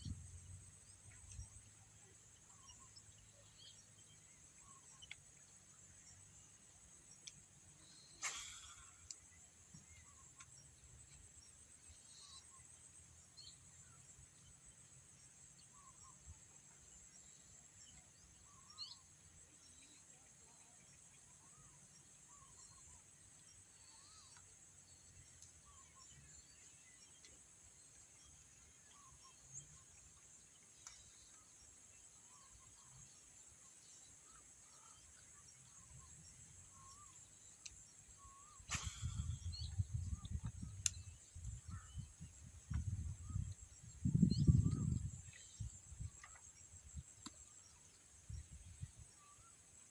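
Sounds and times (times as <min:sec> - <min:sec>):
short bird chirps: 0:07.2 - 0:12.6, 0:21.4 - 0:24.5, 0:34.2 - 0:49.6.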